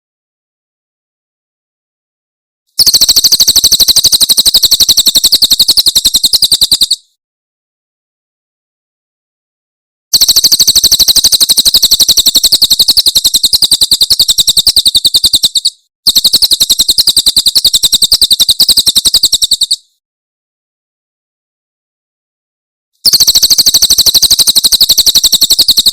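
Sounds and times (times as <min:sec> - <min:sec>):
bird singing rapid high notes: 0:10.9 - 0:19.9.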